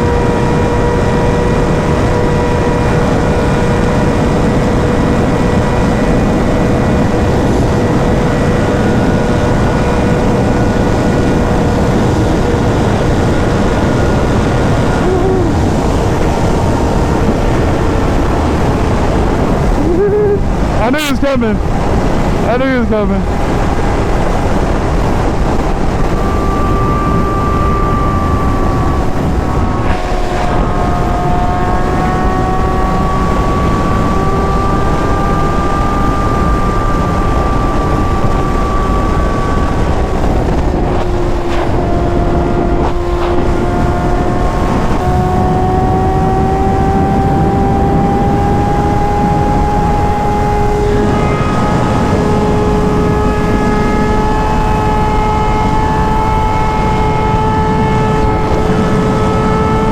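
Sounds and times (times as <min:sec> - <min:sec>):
motorcycle engine cruising: 0:00.0 - 0:59.9
wind rushing on microphone: 0:00.0 - 0:59.9.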